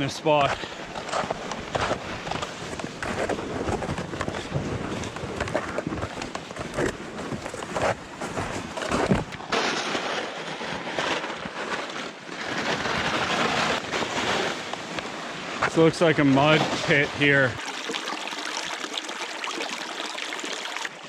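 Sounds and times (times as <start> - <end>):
footsteps crunching on snow: 0.4 - 14.9.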